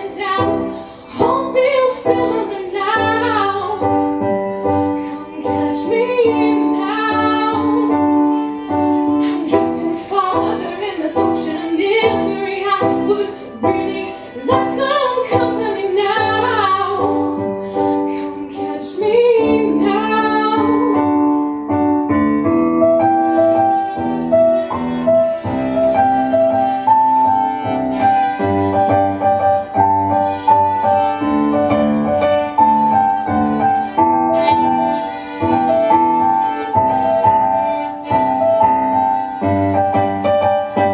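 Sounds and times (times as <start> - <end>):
woman singing: 0.0 - 4.1, 5.0 - 21.6
piano accompaniment: 0.0 - 40.9.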